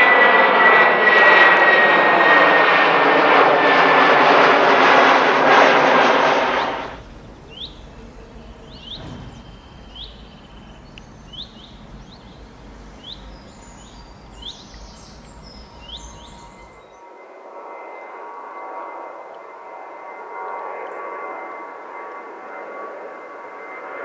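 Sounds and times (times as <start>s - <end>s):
low steady rumble: 6.0s - 16.8s
high twittering: 6.2s - 17.0s
small birds chirping: 7.0s - 17.0s.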